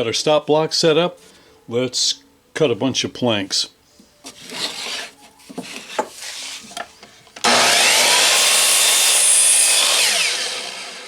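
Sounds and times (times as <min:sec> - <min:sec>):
electric saw cutting wood: 0:07.4 - 0:11.0.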